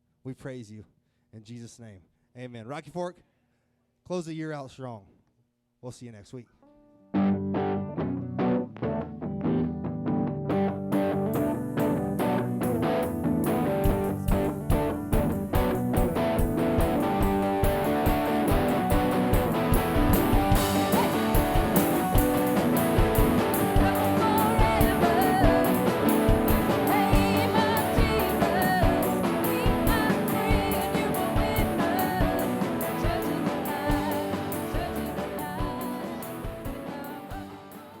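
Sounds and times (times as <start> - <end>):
electric guitar: 6.6 - 38.0
rock band music: 7.1 - 38.0
drum kit beat: 10.9 - 38.0.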